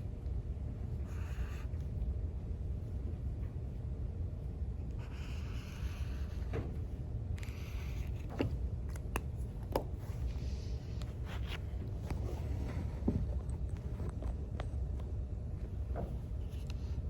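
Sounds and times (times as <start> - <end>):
low room rumble: 0.0 - 17.0.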